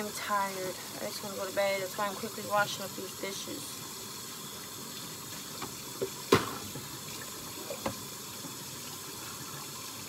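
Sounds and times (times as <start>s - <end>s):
tap running into sink: 5.5s - 8.6s.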